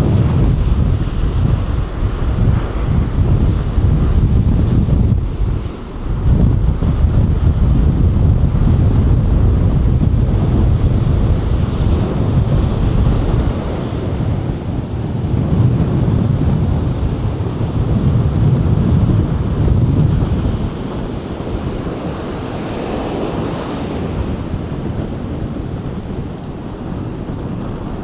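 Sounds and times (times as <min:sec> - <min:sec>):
ocean surf breaking on beach: 0:00.0 - 0:28.0
wind buffeting microphone: 0:00.0 - 0:28.0.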